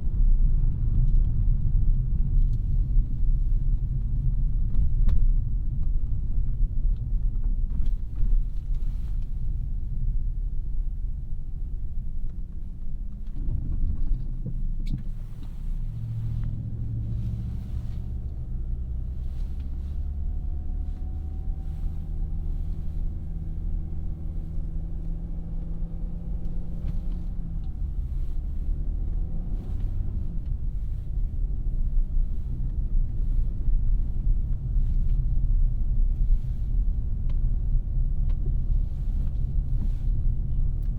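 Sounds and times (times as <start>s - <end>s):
car engine and road noise: 0.0s - 40.9s.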